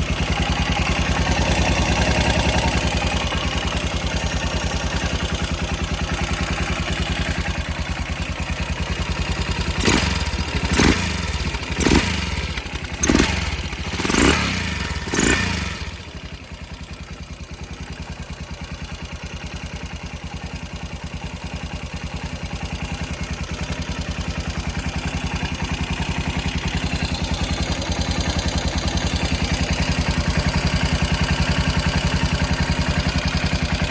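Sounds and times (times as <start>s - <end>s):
motorcycle engine idling: 0.0s - 33.9s
engine revving: 9.7s - 16.2s.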